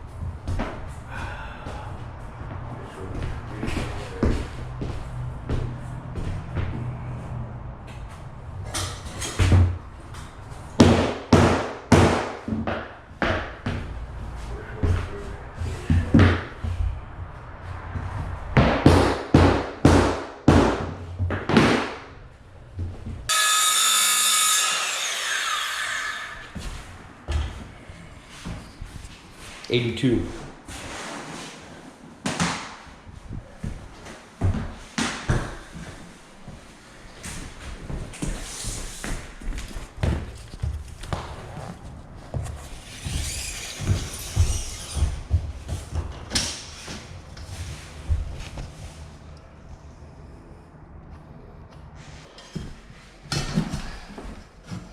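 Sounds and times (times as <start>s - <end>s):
hand saw cutting plank: 23.3s - 26.6s.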